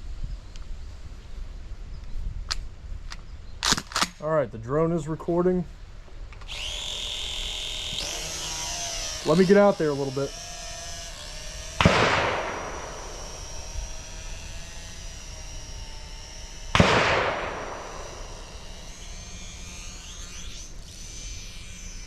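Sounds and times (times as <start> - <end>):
drone hovering whine: 6.4 - 22.0
shotgun blasts echoing: 11.8 - 13.2, 16.7 - 18.1.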